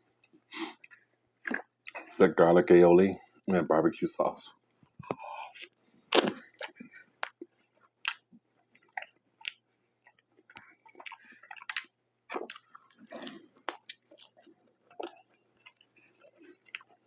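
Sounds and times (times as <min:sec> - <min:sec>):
wet chewing: 0:05.1 - 0:17.0.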